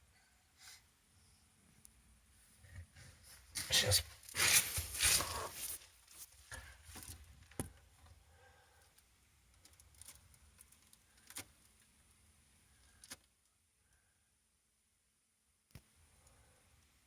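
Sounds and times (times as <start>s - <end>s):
rustling handling noise: 2.8s - 7.6s.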